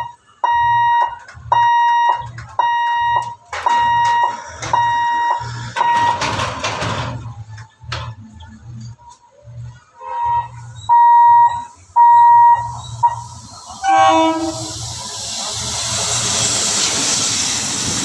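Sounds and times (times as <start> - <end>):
level crossing alarm beeping: 0.0 - 6.4, 10.0 - 14.6
rushing noise: 11.7 - 18.0.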